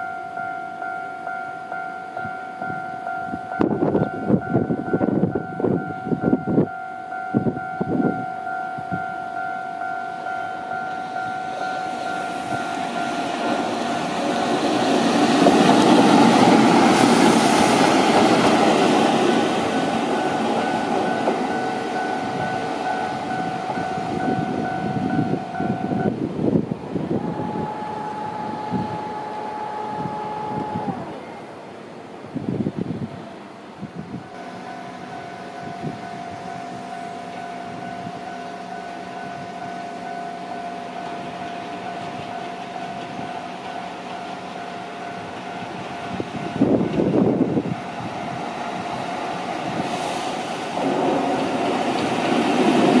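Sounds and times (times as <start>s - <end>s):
passing train rushing: 0.0s - 53.0s
pulsing warning tone: 27.2s - 31.5s.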